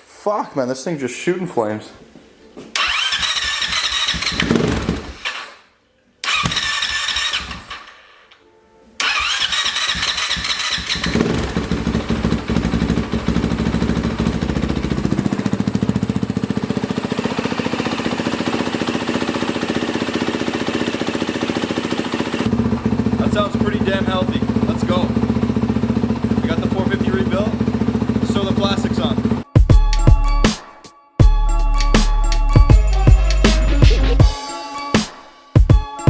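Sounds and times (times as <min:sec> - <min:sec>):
motorcycle engine starting and revving: 0:02.7 - 0:08.3, 0:09.0 - 0:29.5
engine idling: 0:02.8 - 0:05.2, 0:09.1 - 0:29.4.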